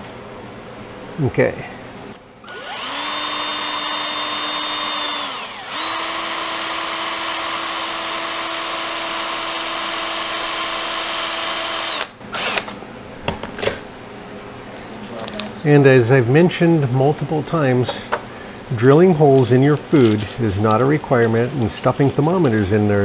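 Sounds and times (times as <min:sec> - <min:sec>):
electric drill whining: 0:02.4 - 0:12.7.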